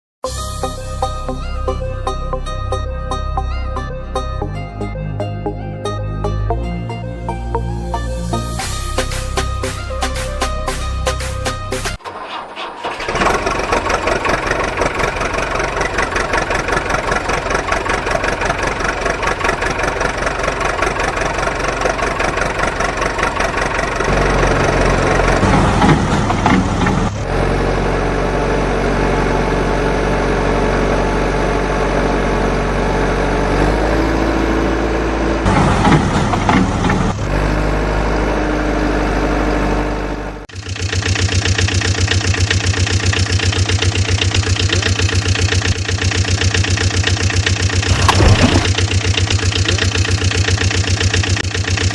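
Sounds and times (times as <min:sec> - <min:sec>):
heavy vehicle engine running: 0:00.3 - 0:51.9
deeper engine note: 0:13.2 - 0:40.4.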